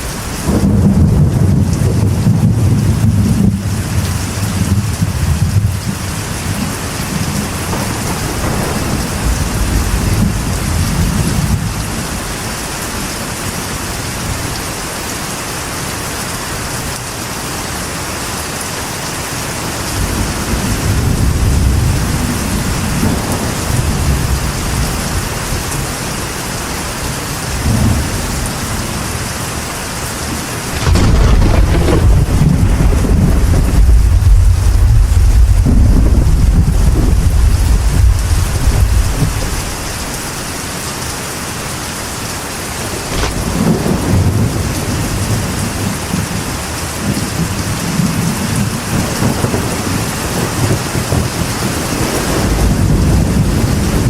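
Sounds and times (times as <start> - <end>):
thunder rumbling: 0.0 - 13.3, 19.6 - 40.2, 42.3 - 54.0
rain on a metal roof: 0.0 - 54.0.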